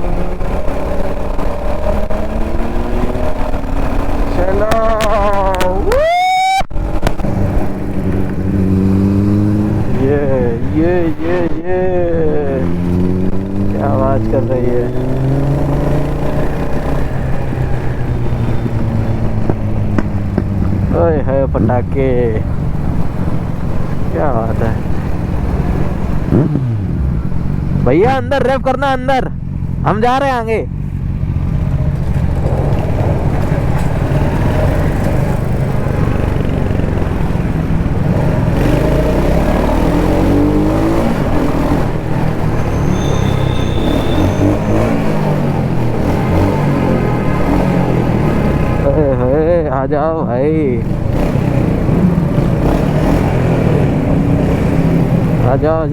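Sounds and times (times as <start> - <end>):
motorcycle engine pulling: 0.0 - 5.8, 30.6 - 49.6
motorcycle engine and exhaust: 0.0 - 55.9
sharp exhaust pops: 6.9 - 8.5, 18.5 - 21.0
wind rush: 32.2 - 38.7.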